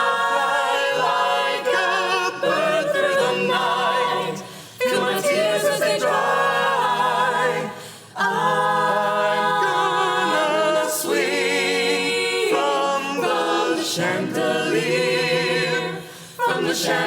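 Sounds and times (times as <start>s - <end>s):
a cappella group singing: 0.0s - 17.0s.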